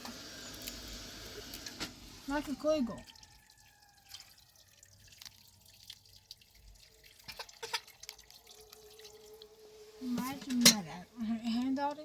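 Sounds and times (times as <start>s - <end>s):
water dripping and splashing: 1.5s - 10.7s.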